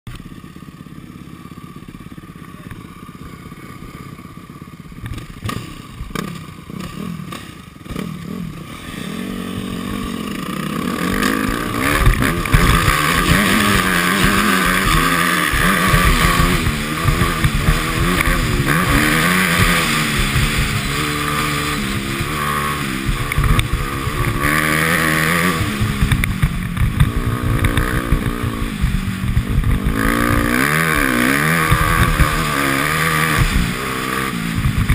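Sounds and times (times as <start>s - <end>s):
dirt bike engine revving: 0.1s - 34.9s
engine knocks: 11.1s - 20.7s.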